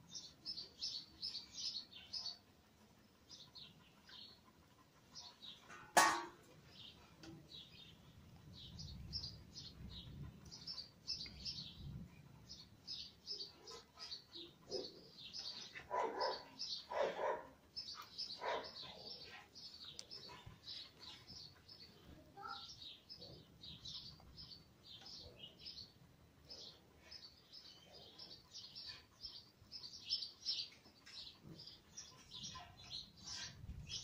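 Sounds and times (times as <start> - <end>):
small birds chirping: 0.0 - 5.8, 6.6 - 34.0.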